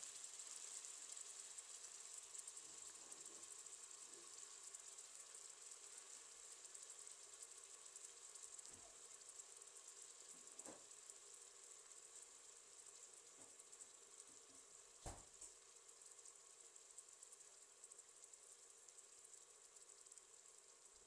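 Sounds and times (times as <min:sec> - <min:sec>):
food sizzling in oil: 0:00.0 - 0:21.0
soft knocks: 0:15.0 - 0:15.3.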